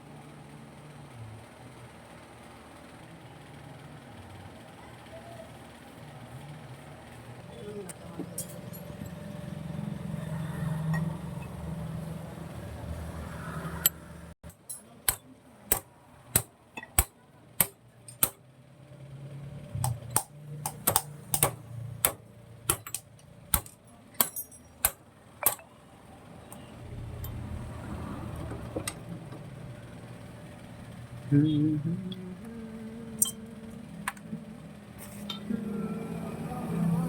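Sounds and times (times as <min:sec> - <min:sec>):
low rumbling hum: 0:05.7 - 0:14.4, 0:19.4 - 0:37.0
metallic clicks and taps: 0:19.8 - 0:25.7.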